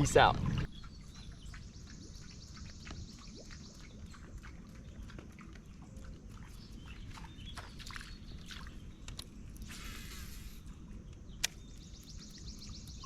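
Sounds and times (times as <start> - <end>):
animal chirps and clicks: 11.0 - 13.0.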